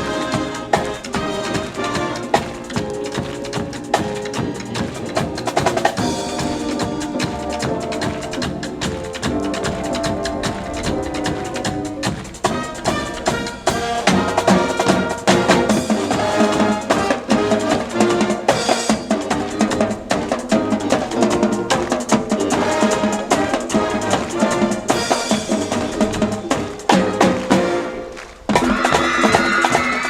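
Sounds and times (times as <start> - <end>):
band music with drums: 0.0 - 30.0.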